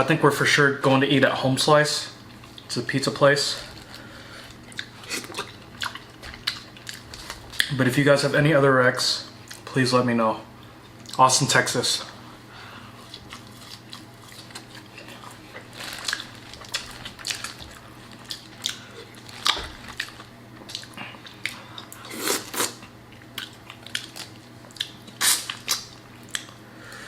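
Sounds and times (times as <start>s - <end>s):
wet chewing: 3.7s - 7.7s, 13.0s - 26.6s
lip smacks: 16.7s - 26.6s.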